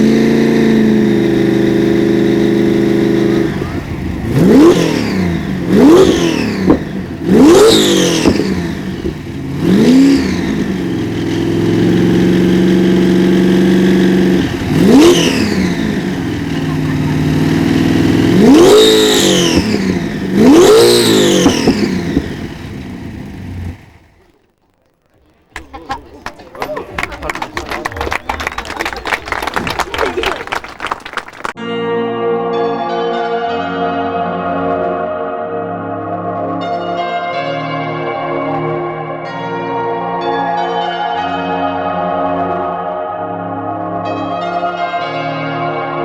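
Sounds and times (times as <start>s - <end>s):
car engine revving at idle: 0.0s - 24.7s.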